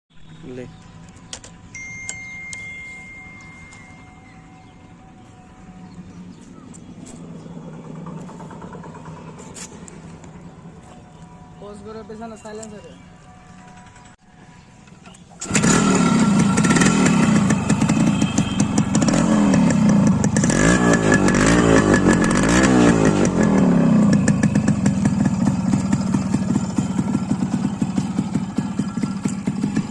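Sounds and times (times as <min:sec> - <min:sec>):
motorcycle engine revving: 0:05.9 - 0:10.9, 0:15.1 - 0:29.9.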